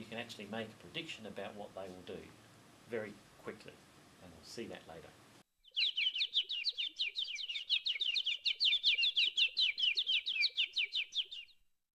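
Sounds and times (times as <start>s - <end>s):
bird chirping rapid down-slurred notes: 5.6s - 11.6s.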